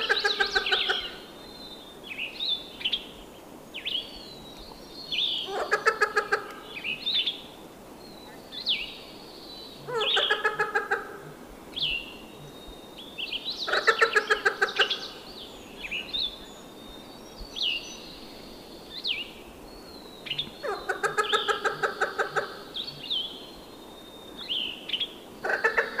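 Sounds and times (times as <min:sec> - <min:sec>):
birds pulsed calls: 0:00.0 - 0:26.0.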